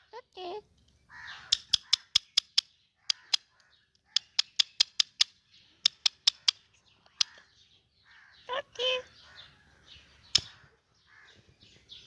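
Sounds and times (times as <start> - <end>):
parakeet sharp calls: 1.1 - 2.3.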